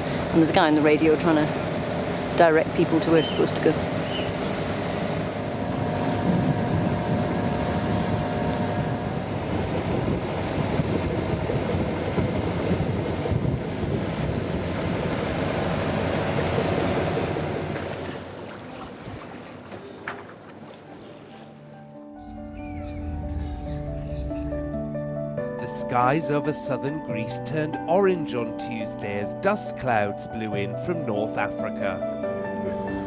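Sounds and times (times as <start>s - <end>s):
steady low hum: 0.0s - 20.6s
water rushing along hull: 0.0s - 21.9s
wind buffeting microphone: 5.2s - 21.5s.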